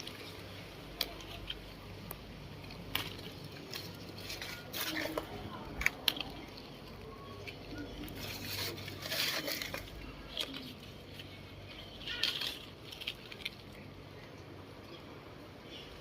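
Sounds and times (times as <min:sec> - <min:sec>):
leaves rustling and crackling: 0:00.0 - 0:16.0.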